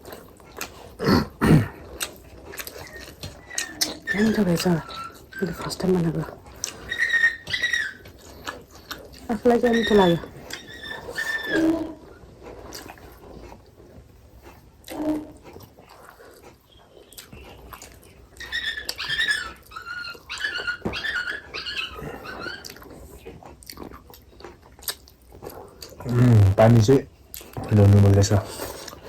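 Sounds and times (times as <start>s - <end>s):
dog whining: 2.7s - 12.2s, 16.8s - 23.0s.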